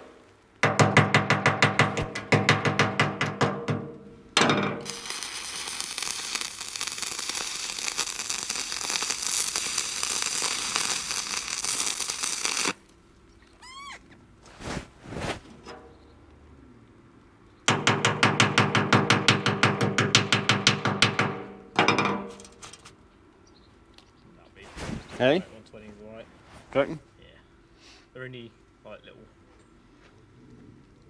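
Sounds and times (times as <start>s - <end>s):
welding arc crackling: 4.8s - 13.0s.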